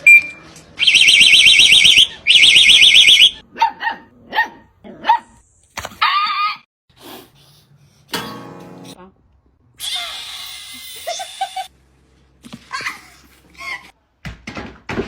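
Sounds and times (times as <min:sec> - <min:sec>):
warbling electronic alarm: 0:00.8 - 0:03.4
dog barking: 0:03.5 - 0:05.4.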